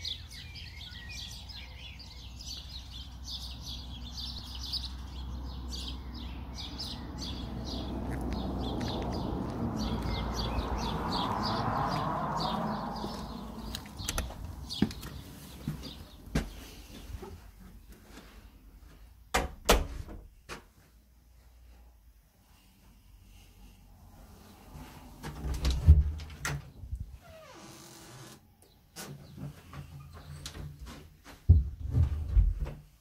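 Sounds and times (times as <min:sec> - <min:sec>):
small birds chirping: 0:00.0 - 0:18.6, 0:28.5 - 0:30.5
front door clicking open: 0:13.7 - 0:14.6.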